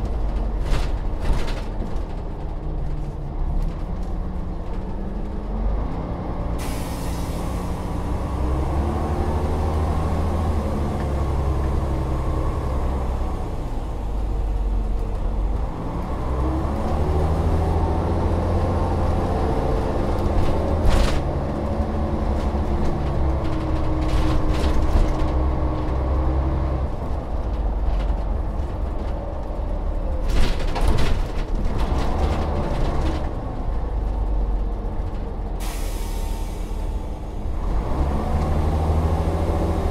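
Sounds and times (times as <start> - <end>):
bus diesel engine running: 0.0 - 39.9
air brake hisses: 6.6 - 8.0, 35.6 - 37.2.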